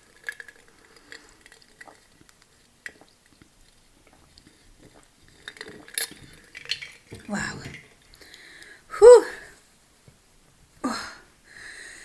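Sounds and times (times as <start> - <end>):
person chewing food: 0.2 - 6.4.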